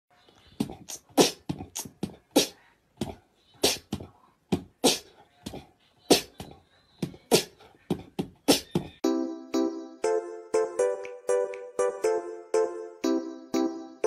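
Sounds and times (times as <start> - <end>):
cat hissing: 3.6 - 4.0.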